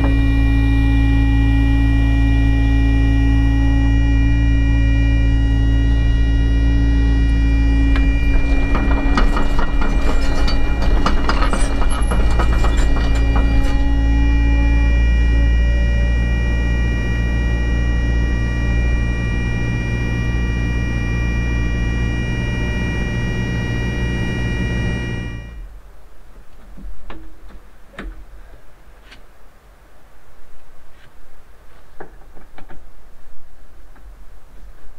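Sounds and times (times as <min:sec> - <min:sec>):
excavator engine hum and whine: 0:00.0 - 0:25.9
rattling scraping clatter: 0:05.3 - 0:15.6.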